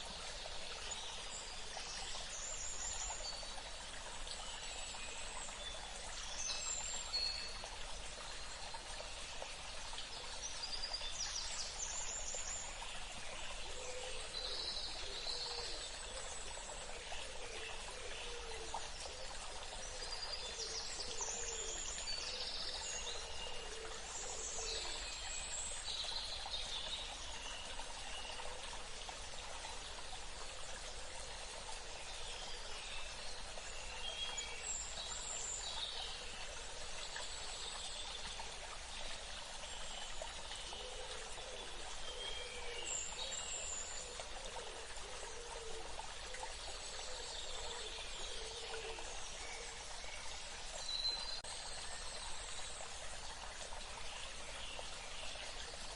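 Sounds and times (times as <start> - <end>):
running water: 0.0 - 55.9.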